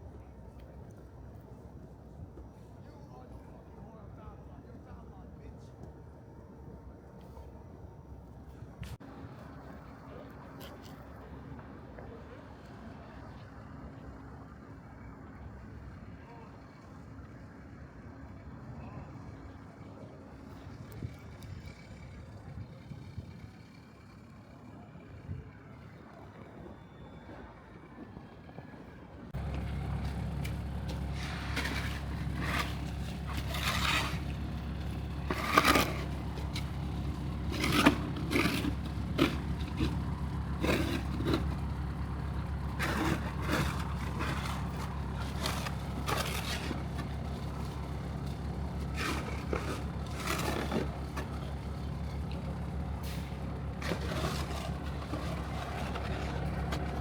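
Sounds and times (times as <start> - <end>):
low engine drone: 13.8 - 57.0
snow scraping and crunching: 29.4 - 52.0, 53.1 - 57.0.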